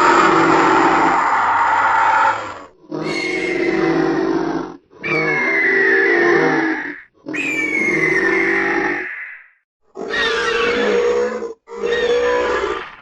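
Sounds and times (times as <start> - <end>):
creature calls: 5.0 - 13.0.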